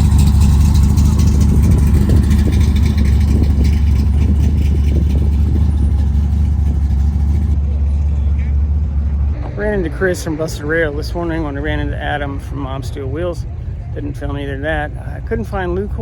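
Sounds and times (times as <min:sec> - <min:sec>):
car engine running: 0:00.0 - 0:07.8.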